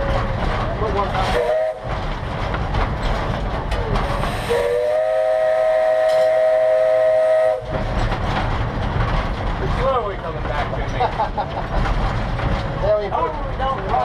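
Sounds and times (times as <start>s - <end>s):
low rumble of running train: 0.0s - 14.0s
steam whistle blast: 4.4s - 7.6s.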